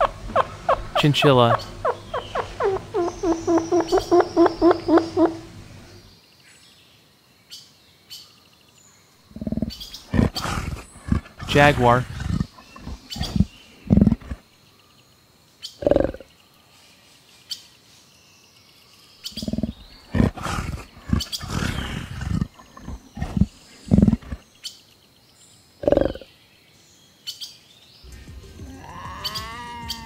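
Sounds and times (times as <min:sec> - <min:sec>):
jaguar growling: 0:09.3 - 0:14.4, 0:15.8 - 0:16.3, 0:19.3 - 0:24.4, 0:25.8 - 0:26.2.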